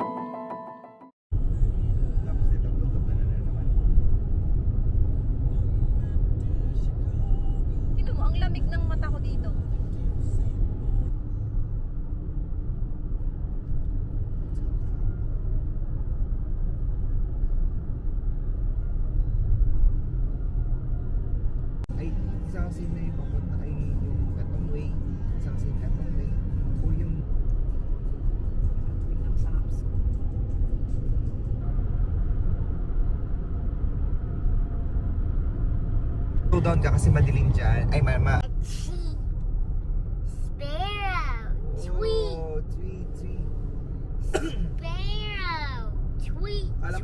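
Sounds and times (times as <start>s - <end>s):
car driving rumble: 1.3s - 47.0s
road noise: 1.3s - 47.0s.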